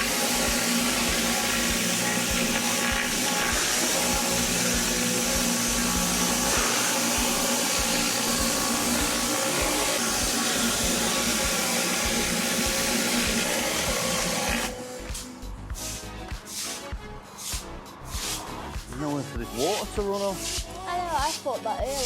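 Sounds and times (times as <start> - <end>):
pressure washer running: 0.0 - 15.2
water jet hissing: 0.0 - 18.6.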